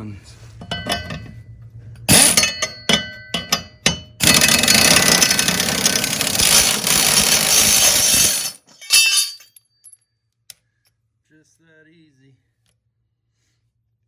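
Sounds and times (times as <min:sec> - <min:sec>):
pneumatic air ratchet running: 0:02.1 - 0:02.6, 0:04.2 - 0:08.6
sharp metallic clinks: 0:02.1 - 0:10.0.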